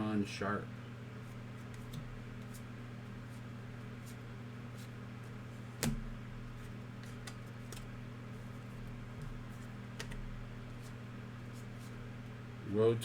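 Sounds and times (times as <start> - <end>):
trading cards being handled: 4.8 - 12.0.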